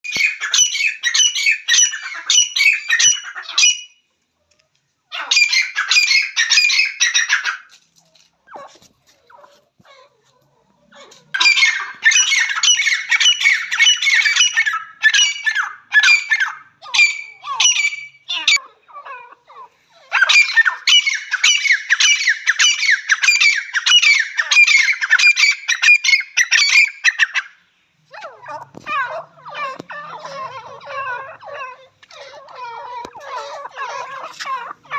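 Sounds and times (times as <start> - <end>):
francolin harsh repeated calls: 0.0 - 4.0, 11.2 - 18.7, 19.8 - 27.6.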